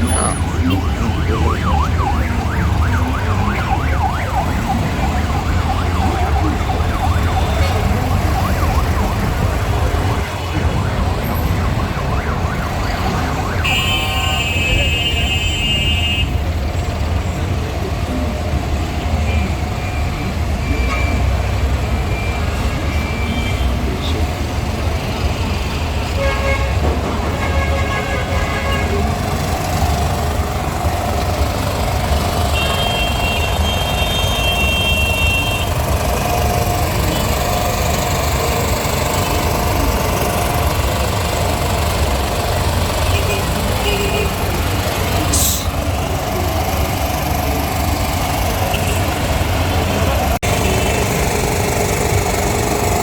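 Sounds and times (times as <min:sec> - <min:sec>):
high steady tone: 0:00.0 - 0:04.2
road traffic rumble: 0:00.0 - 0:53.0.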